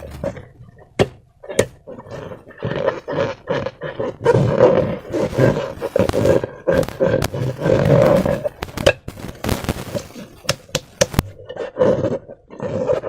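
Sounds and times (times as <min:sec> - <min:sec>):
rubber balloons squeaking: 0:00.0 - 0:11.5
sharp clicks: 0:05.0 - 0:11.3.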